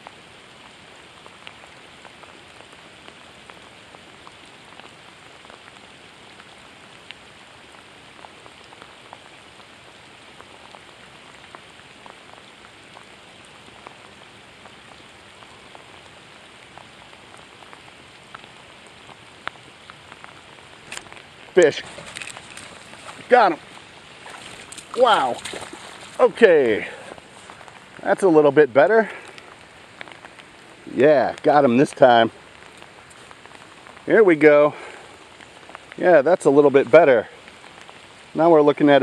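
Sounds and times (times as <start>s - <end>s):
heavy rain on water: 0.0s - 39.0s.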